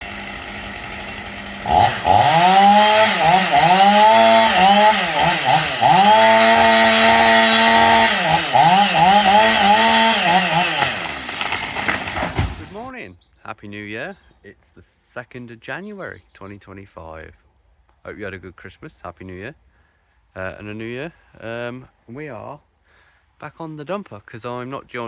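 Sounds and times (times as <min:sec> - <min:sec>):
chainsaw engine revving: 0:00.0 - 0:12.9.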